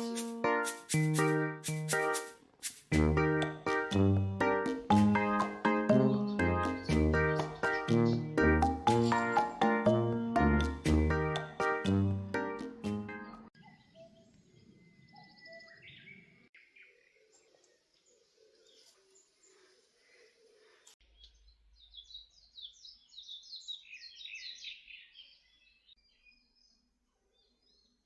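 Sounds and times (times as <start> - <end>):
rapid high chirps: 0.0 - 3.8
birds calling: 4.6 - 10.0.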